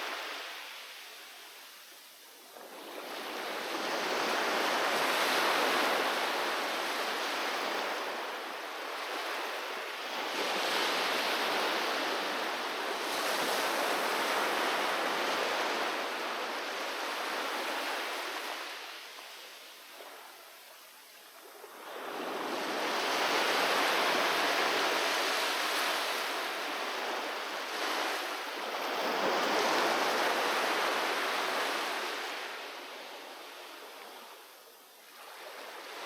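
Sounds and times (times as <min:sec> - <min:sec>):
sea waves washing onto shore: 0:21.3 - 0:34.5.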